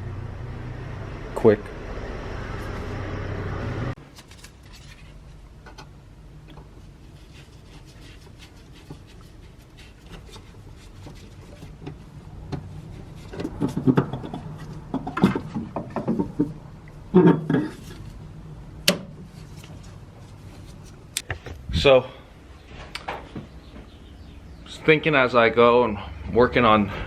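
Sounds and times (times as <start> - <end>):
tools and car parts handled: 4.0 - 5.9, 6.5 - 16.6, 17.2 - 18.2, 18.8 - 21.7.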